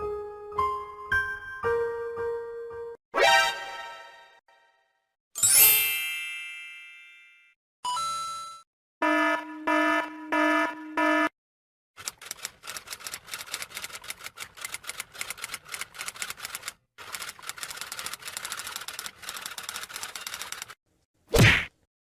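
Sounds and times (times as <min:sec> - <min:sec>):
typewriter keystrokes clacking: 0:12.0 - 0:20.8.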